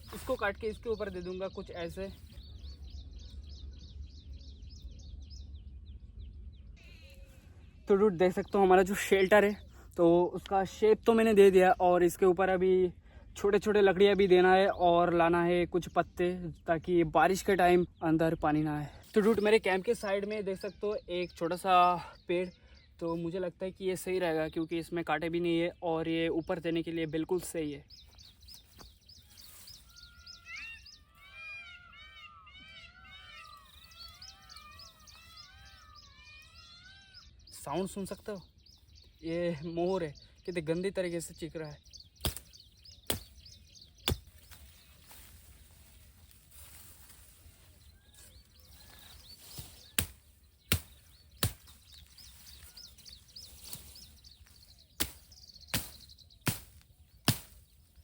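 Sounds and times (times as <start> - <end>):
wild birds calling: 0.0 - 10.2, 17.0 - 58.0
blade chopping wood: 42.2 - 43.4, 50.0 - 51.8, 55.0 - 57.6.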